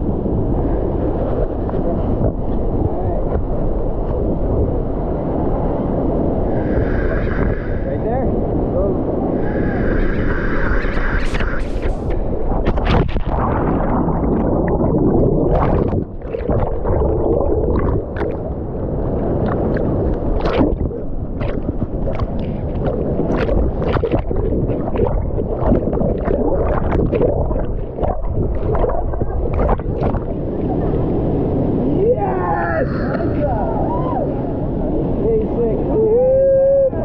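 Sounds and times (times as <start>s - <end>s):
sharp pops and clicks: 19.4s - 30.3s.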